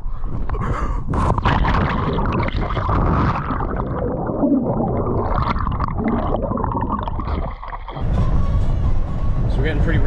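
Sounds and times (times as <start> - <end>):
water gurgling and sloshing: 0.5 - 8.4.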